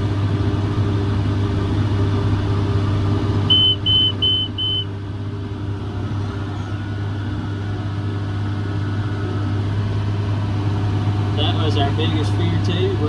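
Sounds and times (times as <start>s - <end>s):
diesel tractor engine in cab: 0.0s - 13.0s
short beeps: 3.5s - 4.9s.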